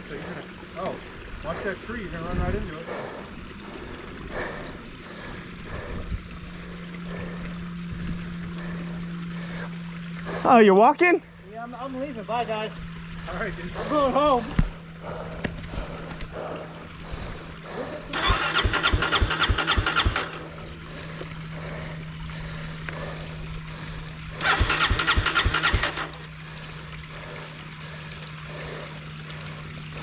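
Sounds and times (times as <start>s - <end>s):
low engine hum: 0.0s - 30.0s
electric starter cranking: 18.1s - 20.6s, 24.4s - 26.4s.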